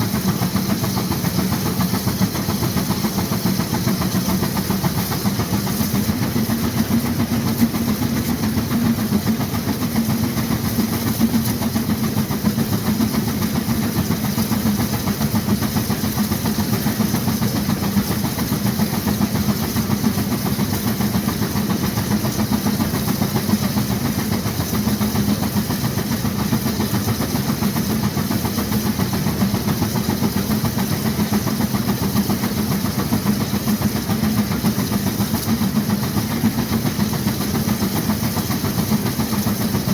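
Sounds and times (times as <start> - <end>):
steam engine exhaust beats and hiss: 0.0 - 39.9.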